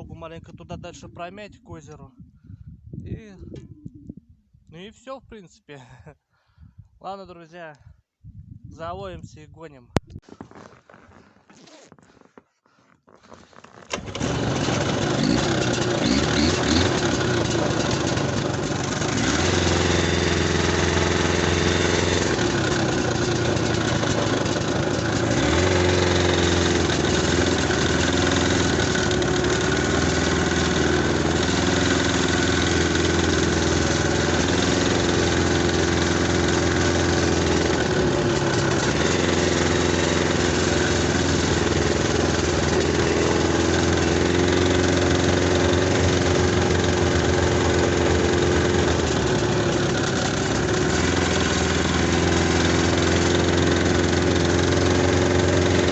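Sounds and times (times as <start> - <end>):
snowmobile engine running: 13.9 - 55.9.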